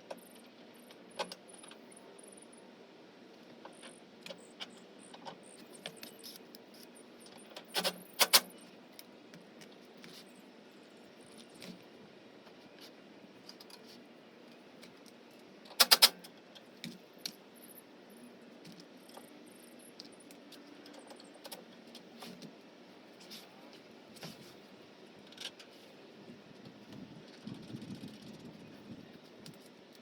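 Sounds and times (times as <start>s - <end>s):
sharp clicks and small knocks: 14.8s - 17.4s.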